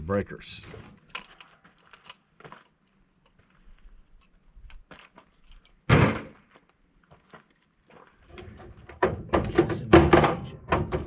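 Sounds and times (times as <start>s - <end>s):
loud thunk of scrap: 5.9s - 6.4s.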